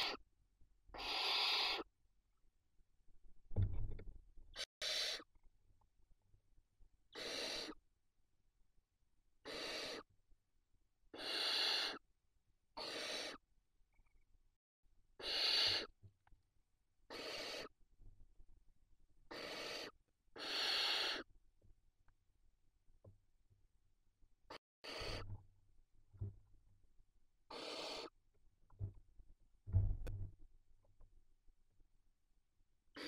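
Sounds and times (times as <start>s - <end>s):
owl chicks rasping hiss calls: 0.0s - 0.2s, 0.9s - 1.9s, 4.6s - 5.3s, 7.1s - 7.8s, 9.4s - 10.1s, 11.1s - 12.0s, 12.8s - 13.4s, 15.2s - 16.0s, 17.1s - 17.8s, 19.3s - 21.3s, 24.8s - 25.2s, 27.5s - 28.1s.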